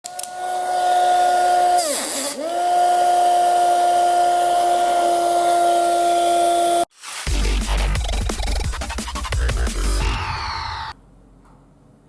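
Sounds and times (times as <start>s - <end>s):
small motor high whine: 10.1s - 11.0s.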